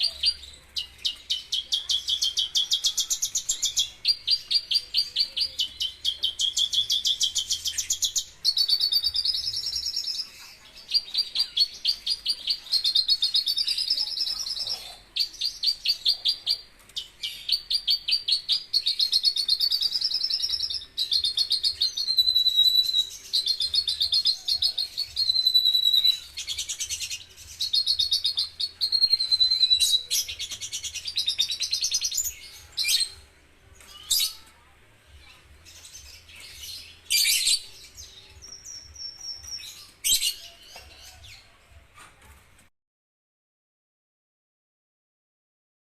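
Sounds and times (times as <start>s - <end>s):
lark singing fast trills: 17.3s - 32.2s.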